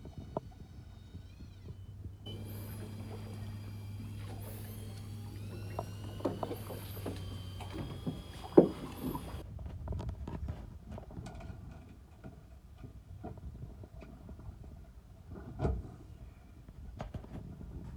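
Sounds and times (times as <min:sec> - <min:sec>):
steady low hum: 0:00.6 - 0:09.4.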